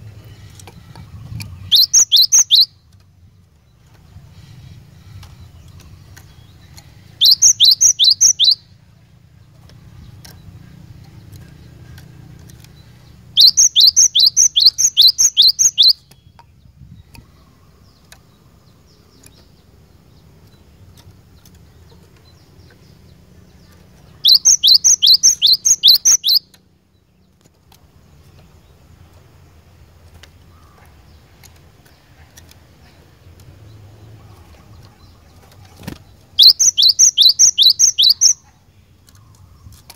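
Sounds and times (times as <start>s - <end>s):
bird whistling rapid high notes: 1.6s - 2.7s, 7.2s - 8.6s, 13.4s - 16.0s, 24.3s - 26.4s, 36.4s - 38.4s.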